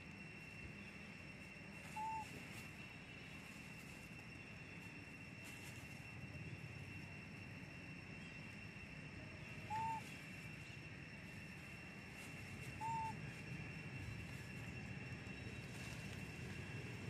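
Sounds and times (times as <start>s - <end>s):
bird hooting: 1.7s - 3.2s, 9.3s - 10.8s, 12.4s - 14.2s.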